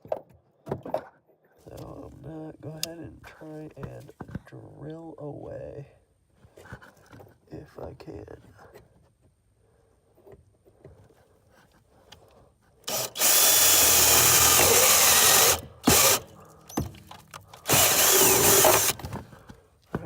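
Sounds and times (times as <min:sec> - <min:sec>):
power drill boring through steel: 0:12.9 - 0:16.9, 0:17.6 - 0:19.0.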